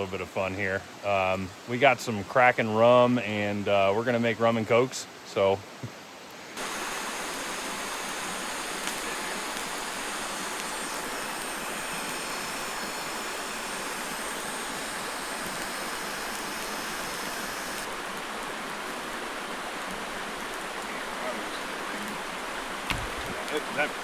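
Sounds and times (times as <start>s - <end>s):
creek water rushing: 6.4s - 24.0s.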